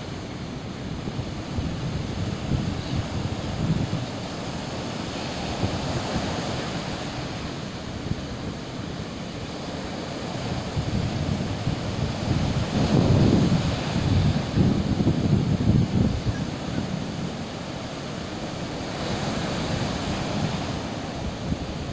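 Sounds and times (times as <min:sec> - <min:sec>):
sea surf washing: 0:00.0 - 0:21.9
wind buffeting microphone: 0:00.0 - 0:21.9.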